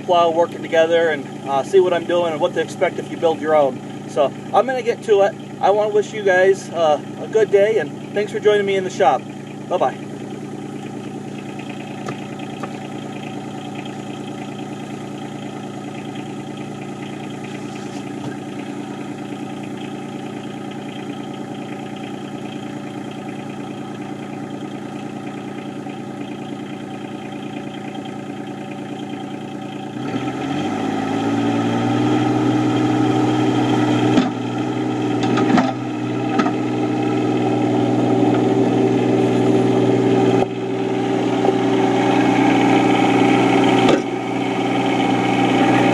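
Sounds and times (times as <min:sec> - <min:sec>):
tractor diesel engine: 0:00.0 - 0:45.9
short clunks: 0:11.8 - 0:12.9, 0:17.4 - 0:18.7, 0:34.1 - 0:34.4, 0:35.2 - 0:36.6, 0:43.8 - 0:44.1.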